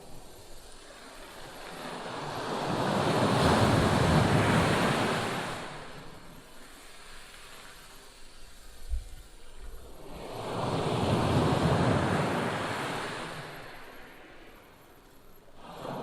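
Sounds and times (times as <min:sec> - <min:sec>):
wave breaking on shore: 0:02.0 - 0:06.2, 0:10.0 - 0:14.2.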